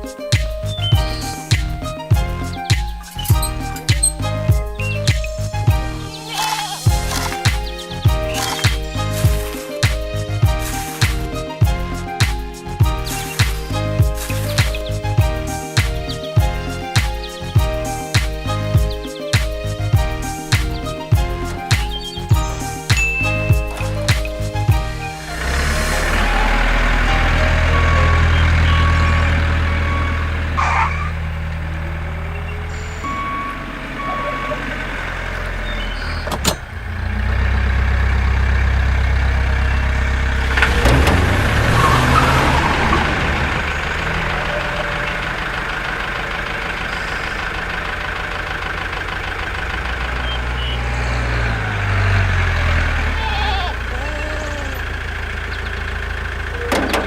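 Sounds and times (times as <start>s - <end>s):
model tractor engine hum: 0.0s - 57.0s
sharp click: 6.4s - 7.7s, 8.3s - 8.8s
reversing beeps: 27.7s - 30.3s, 32.3s - 35.0s.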